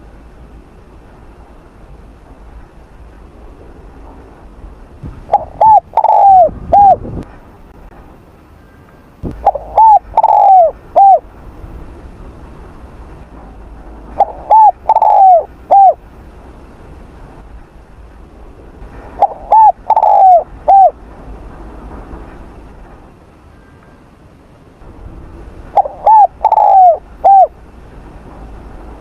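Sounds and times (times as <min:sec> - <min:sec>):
dove cooing: 0:05.2 - 0:07.1, 0:09.3 - 0:11.3, 0:14.2 - 0:16.0, 0:19.2 - 0:21.0, 0:25.8 - 0:27.6.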